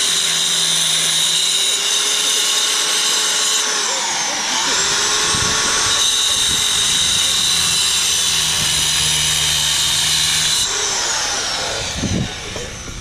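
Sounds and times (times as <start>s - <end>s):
power tool running: 0.0s - 13.0s.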